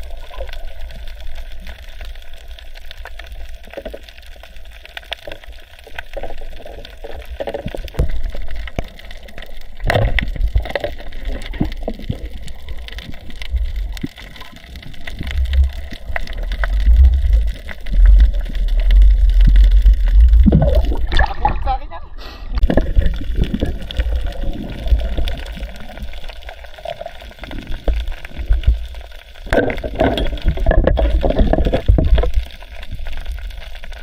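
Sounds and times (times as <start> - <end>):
water gurgling and sloshing: 0.0 - 34.0
low rumble: 15.1 - 26.3.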